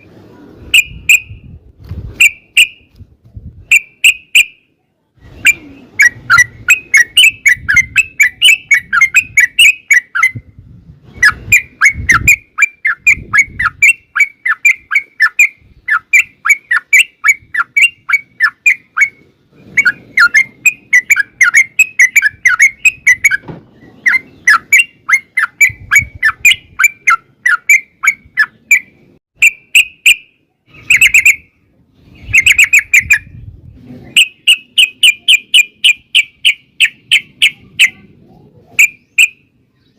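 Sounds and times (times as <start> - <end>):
bird singing bubbly song: 5.3 - 10.4, 19.8 - 33.3.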